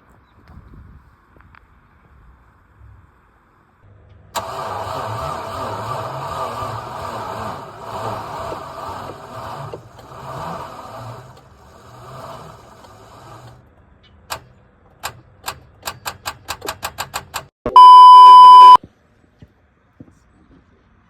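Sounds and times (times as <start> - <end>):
car engine running: 4.4 - 13.6
loud steady beep: 17.7 - 18.8.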